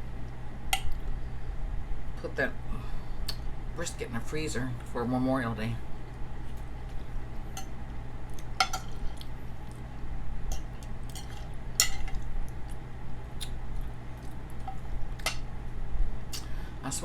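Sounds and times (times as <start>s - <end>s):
steady low hum: 0.0s - 17.0s
eating sounds: 7.9s - 10.1s, 10.7s - 15.3s.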